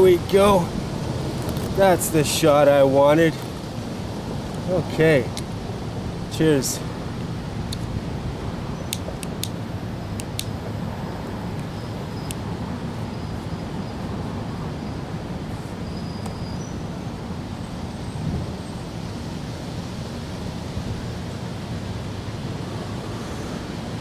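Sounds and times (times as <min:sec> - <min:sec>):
low outdoor rumble: 0:00.0 - 0:24.0
sharp clicks: 0:08.9 - 0:09.6, 0:10.2 - 0:10.6.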